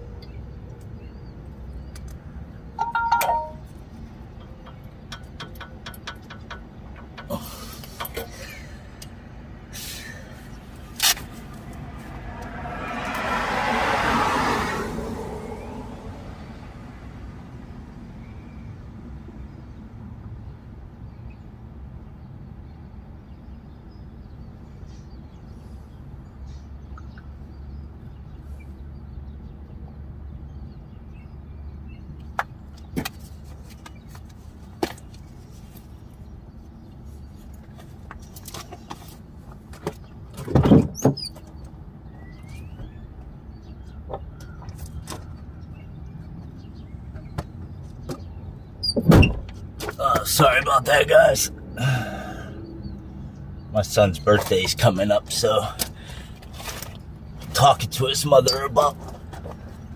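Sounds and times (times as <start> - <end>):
sharp clicks and knocks: 4.3 - 8.3.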